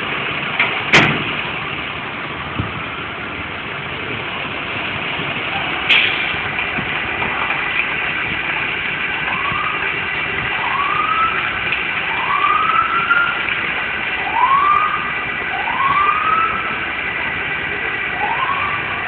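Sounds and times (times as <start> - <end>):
city traffic: 0.0 - 19.0
emergency siren whoops: 9.2 - 16.9, 18.0 - 19.0.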